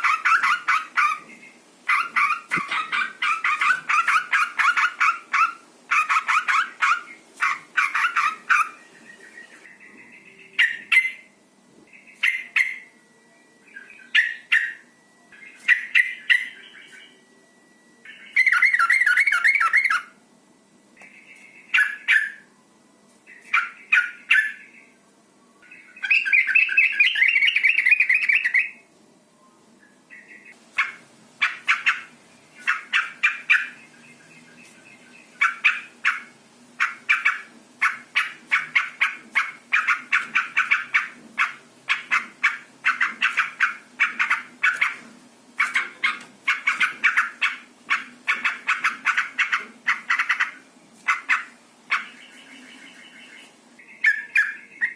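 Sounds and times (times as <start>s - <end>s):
bulbul chattering calls: 0.0s - 1.3s, 35.3s - 45.0s, 45.6s - 54.9s.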